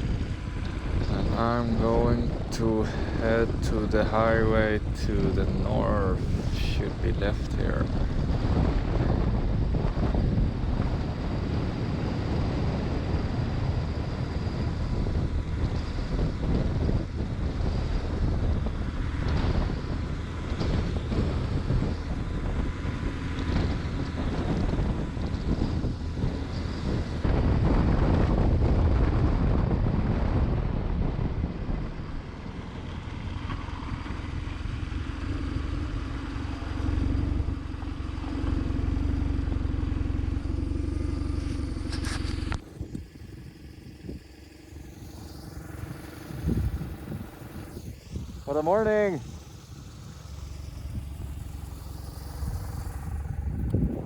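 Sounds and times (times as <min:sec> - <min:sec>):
heavy wind noise: 0:00.0 - 0:54.0
motorcycle engine running: 0:00.0 - 0:54.0.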